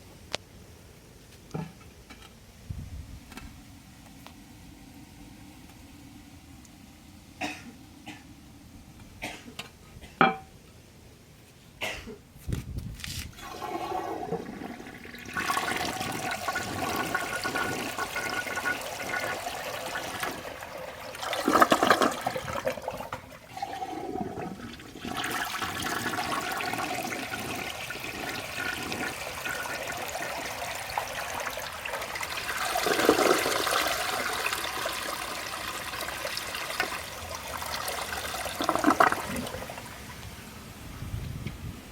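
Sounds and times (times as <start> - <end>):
toilet flushing: 13.4 - 40.4.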